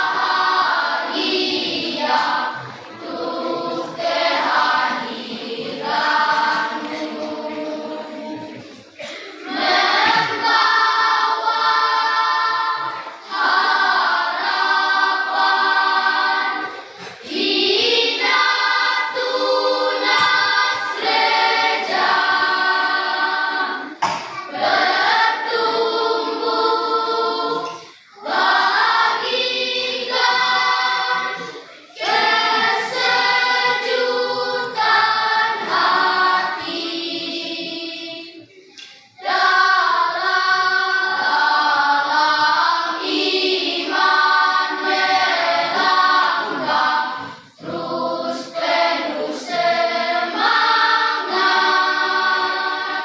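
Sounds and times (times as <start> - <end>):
choir singing in harmony: 0.0 - 53.0.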